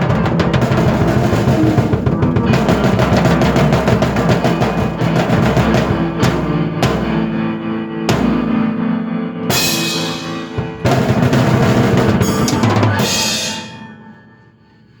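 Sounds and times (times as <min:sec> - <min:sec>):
drum roll: 0:00.0 - 0:07.4, 0:08.1 - 0:08.6, 0:09.5 - 0:14.0
held keyboard chords: 0:00.0 - 0:14.8
cymbal crash: 0:09.5 - 0:15.0.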